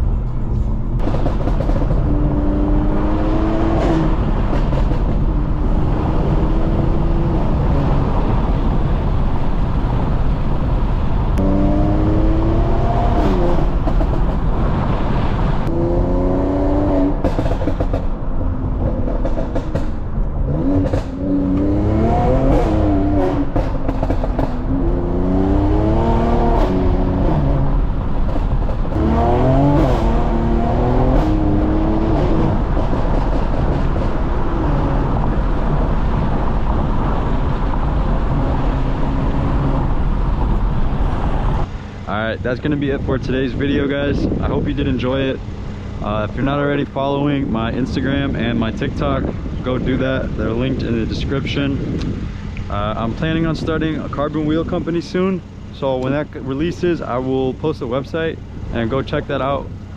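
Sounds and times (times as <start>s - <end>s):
road and tyre noise: 0.0s - 59.9s
car engine accelerating through gears: 0.4s - 41.7s.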